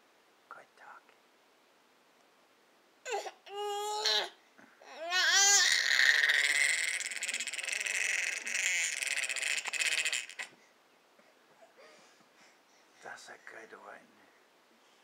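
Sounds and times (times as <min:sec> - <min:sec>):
baby screeching: 0:03.1 - 0:10.5.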